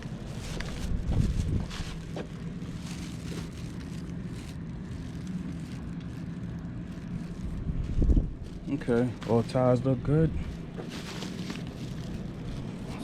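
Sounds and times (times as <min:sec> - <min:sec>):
wind on microphone: 0:00.7 - 0:02.0, 0:07.2 - 0:08.7.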